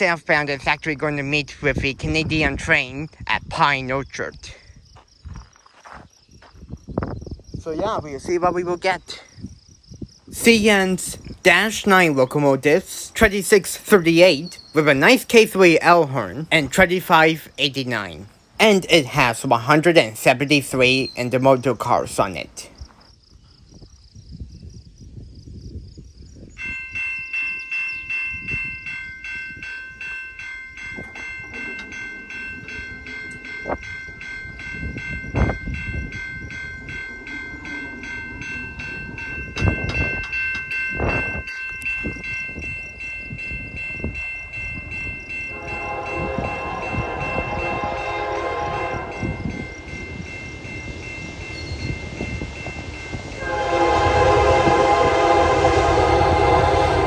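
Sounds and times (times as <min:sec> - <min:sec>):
level-crossing warning bell: 0:10.4 - 0:22.8, 0:26.5 - 0:57.0
locomotive air horn blast: 0:45.5 - 0:49.4, 0:53.4 - 0:57.0.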